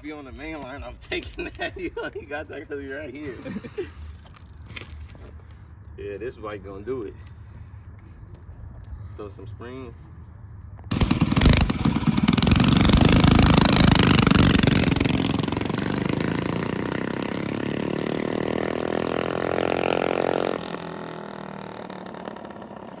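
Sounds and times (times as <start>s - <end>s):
small engine accelerating: 10.9s - 23.0s.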